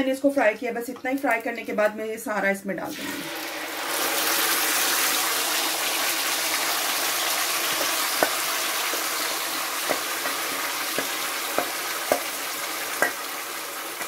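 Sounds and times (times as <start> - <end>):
gravy sizzling in hot oil: 2.9 - 14.0
spoon knocking against pan: 9.8 - 12.3, 13.0 - 13.3.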